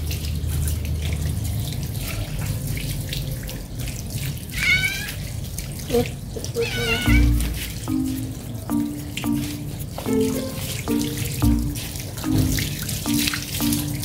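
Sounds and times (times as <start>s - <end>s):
hose water splashing: 0.0s - 14.0s
cat meowing: 4.6s - 5.2s, 6.6s - 7.5s.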